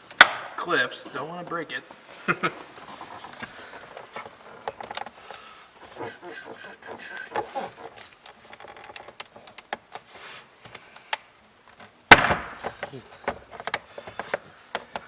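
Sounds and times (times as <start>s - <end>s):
loud plastic snap: 0.1s - 0.6s, 12.1s - 12.9s
rattling plastic: 2.8s - 10.1s, 11.8s - 15.0s
plastic clicks and creaks: 2.9s - 15.0s.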